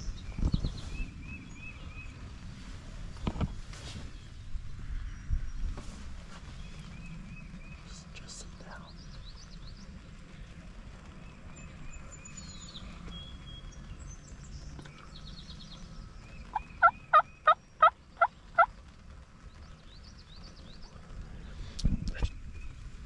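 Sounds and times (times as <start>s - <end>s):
songbirds chirping faintly: 0.0s - 23.0s
turkey yelping: 16.5s - 18.7s.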